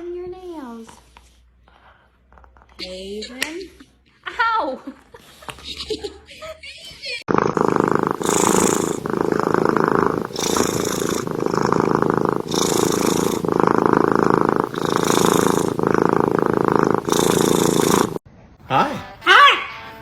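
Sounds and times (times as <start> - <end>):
cat purring: 7.3 - 18.2.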